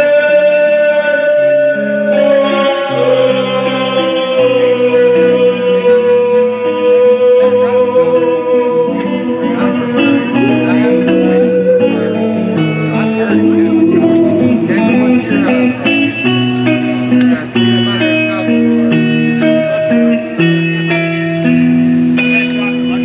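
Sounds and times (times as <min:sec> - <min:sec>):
electric guitar: 0:00.0 - 0:23.0
live band playing: 0:08.8 - 0:23.0.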